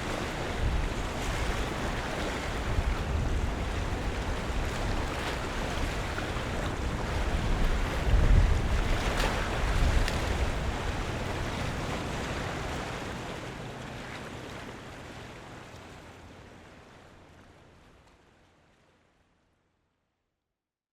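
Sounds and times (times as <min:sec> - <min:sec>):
waves washing: 0:00.0 - 0:17.8.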